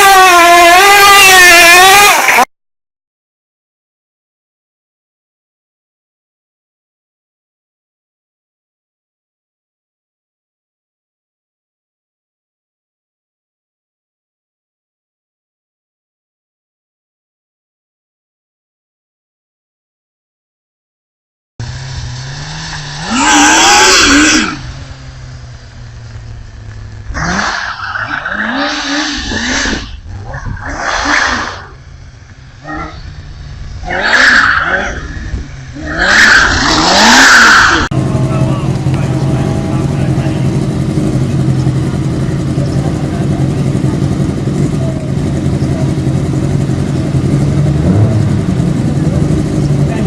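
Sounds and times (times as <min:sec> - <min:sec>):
motorcycle engine revving: 0:00.0 - 0:02.5, 0:21.6 - 0:50.0.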